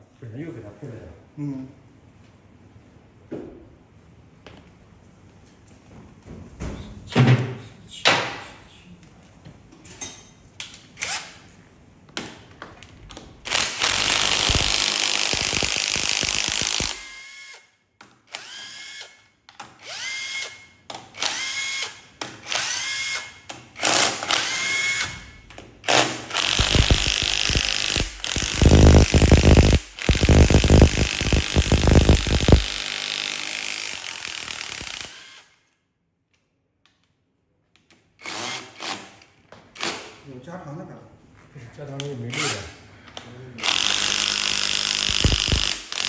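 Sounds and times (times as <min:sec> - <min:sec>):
power tool whirring: 0:13.5 - 0:17.7, 0:25.9 - 0:35.6, 0:43.6 - 0:46.0.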